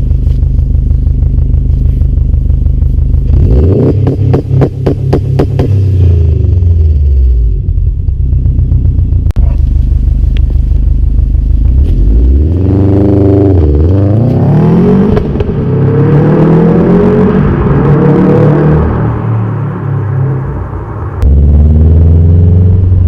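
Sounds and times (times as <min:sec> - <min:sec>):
car engine revving: 0:00.0 - 0:23.0
exhaust crack: 0:00.0 - 0:23.0.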